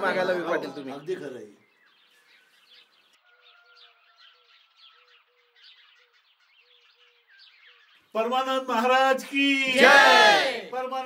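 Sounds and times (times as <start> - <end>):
birds chirping: 0.0 - 9.2
low repeated bird call notes: 0.8 - 8.9.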